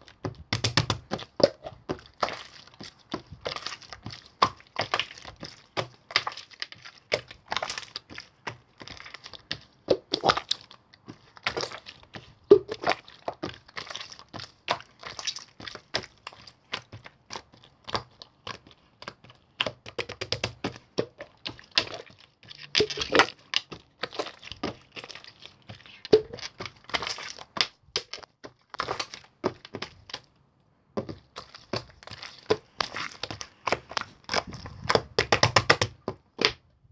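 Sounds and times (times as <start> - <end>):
slime squishing with sticky pops: 0.0 - 30.3, 31.0 - 36.6.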